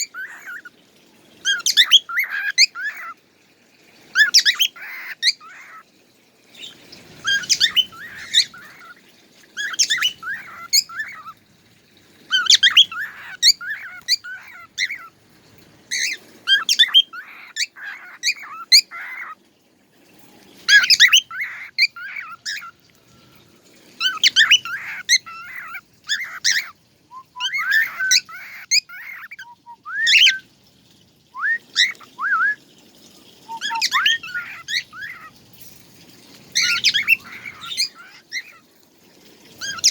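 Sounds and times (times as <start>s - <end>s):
songbird chirping and whistling: 6.5s - 9.0s, 9.6s - 11.4s, 12.3s - 15.1s, 15.9s - 19.4s, 20.6s - 23.4s, 24.0s - 30.5s, 31.3s - 32.7s, 33.4s - 35.3s, 36.6s - 38.6s.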